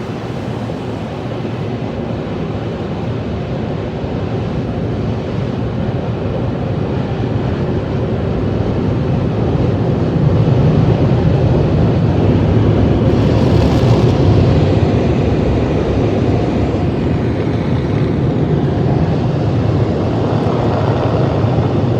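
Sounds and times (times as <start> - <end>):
car wash machinery rushing: 0.0 - 3.3, 12.2 - 21.9
low rumble: 12.7 - 21.9.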